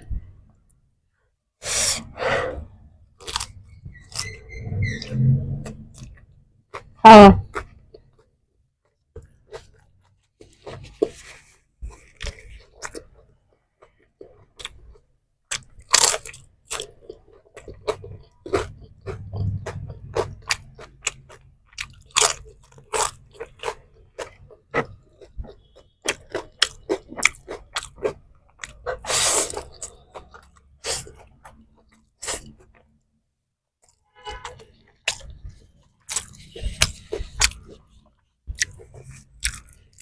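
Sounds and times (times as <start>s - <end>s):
chewing crunchy food: 3.2s - 4.4s, 5.9s - 33.0s, 33.8s - 40.0s.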